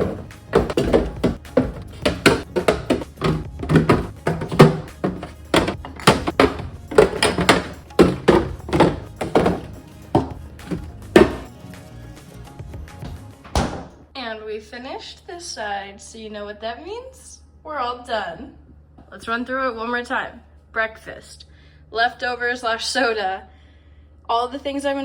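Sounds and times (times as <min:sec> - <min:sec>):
bottles knocking on fridge shelves: 0:00.0 - 0:11.5
background music: 0:00.0 - 0:14.1.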